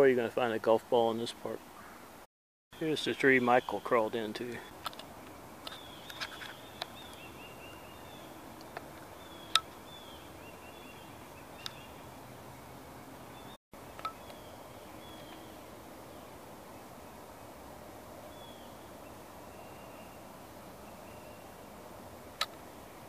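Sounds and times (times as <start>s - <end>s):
faint bird chirps: 2.8s - 8.4s, 9.1s - 16.9s.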